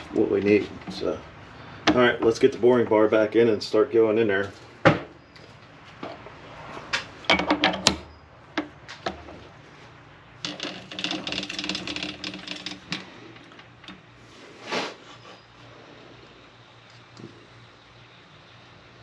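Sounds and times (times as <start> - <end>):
metal tooling clinking: 10.4 - 14.0
rapid metallic rattling: 10.4 - 14.1.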